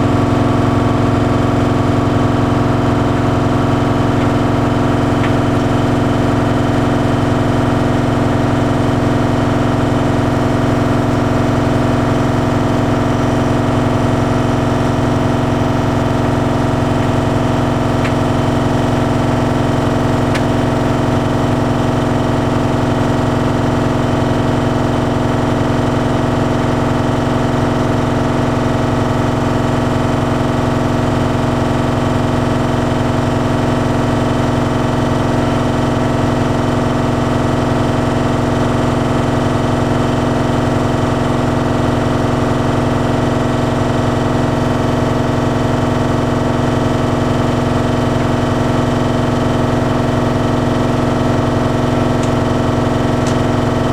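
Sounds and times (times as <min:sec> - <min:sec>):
tumble dryer humming: 0:00.0 - 0:22.9, 0:46.4 - 0:53.9.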